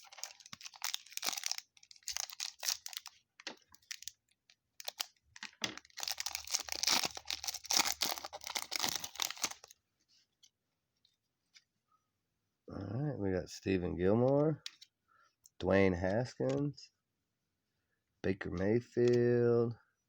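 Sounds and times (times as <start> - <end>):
card pack wrapper crinkling: 0.0 - 9.8.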